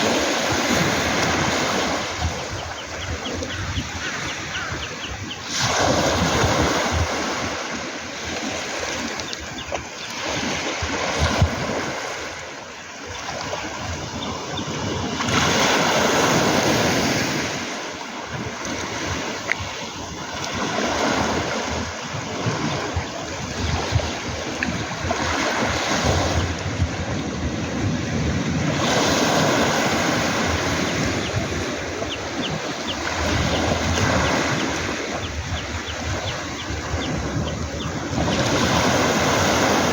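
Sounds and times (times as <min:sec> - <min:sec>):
waves washing over pebble beach: 0:36.7 - 0:39.9.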